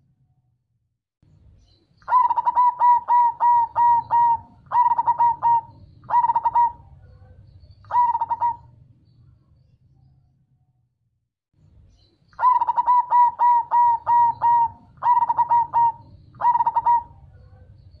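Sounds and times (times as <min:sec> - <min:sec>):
faint low hum: 0:01.2 - 0:18.0
dove cooing: 0:02.0 - 0:08.9, 0:12.4 - 0:18.0.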